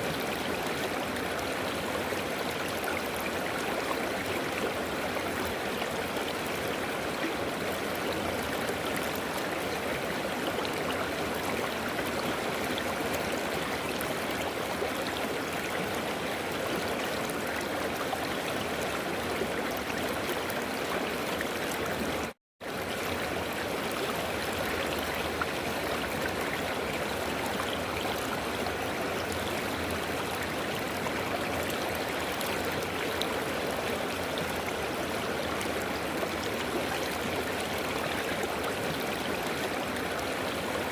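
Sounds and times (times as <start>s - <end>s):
river flowing: 0.0s - 40.9s.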